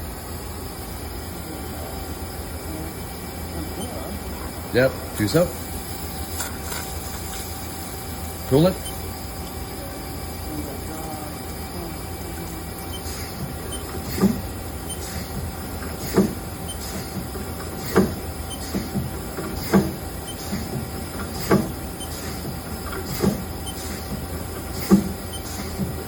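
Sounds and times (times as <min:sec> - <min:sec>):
sharp machine clunk: 0:12.9 - 0:24.0.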